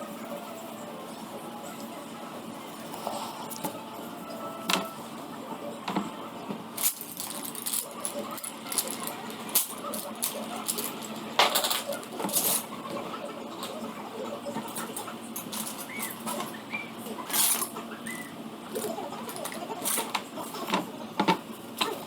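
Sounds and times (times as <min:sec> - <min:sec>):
colouring tools clicking: 0:06.8 - 0:11.2.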